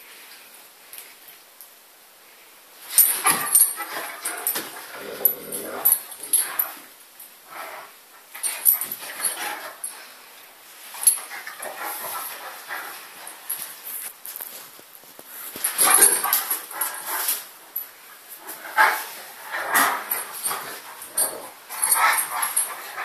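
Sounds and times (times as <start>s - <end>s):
dogs making vocal and mouth noises: 11.0s - 14.0s, 15.4s - 17.6s, 18.4s - 23.0s.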